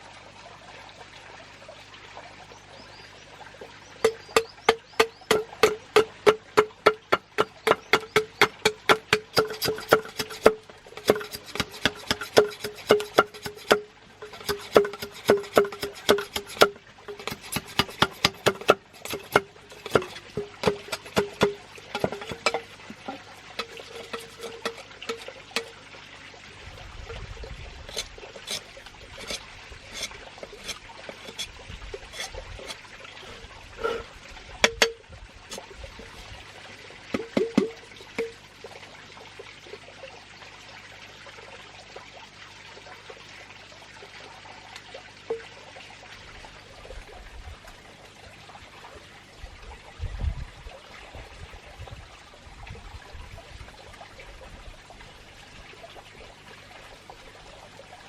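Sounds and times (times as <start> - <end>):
water trickling: 0.0 - 58.0
sharp clicks and knocks: 4.0 - 25.8, 37.2 - 38.4.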